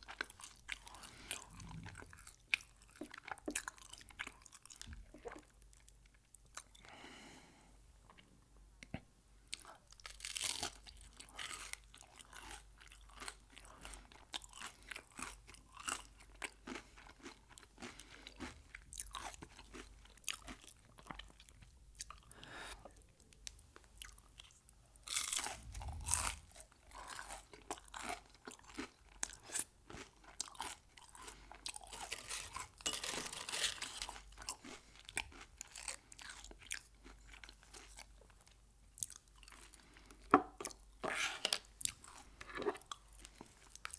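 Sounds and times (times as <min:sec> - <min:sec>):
crunchy bites and chewing: 0:09.6 - 0:22.3, 0:24.0 - 0:38.4.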